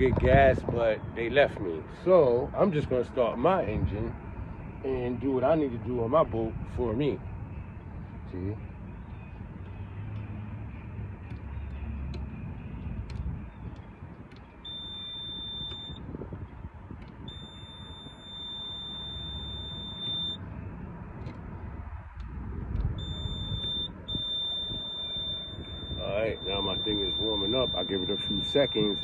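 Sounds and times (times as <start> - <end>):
high-pitched warning buzzer beeps: 14.6 - 16.0, 17.3 - 20.4, 23.0 - 29.0.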